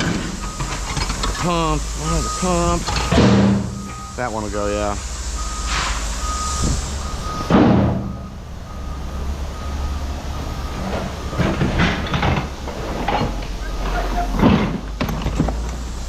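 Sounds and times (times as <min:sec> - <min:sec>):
metal parts clanking: 0:00.0 - 0:01.8, 0:02.8 - 0:04.2, 0:10.9 - 0:15.7
reversing alarm beeping: 0:00.0 - 0:12.2
vehicle engine idling: 0:00.0 - 0:14.4.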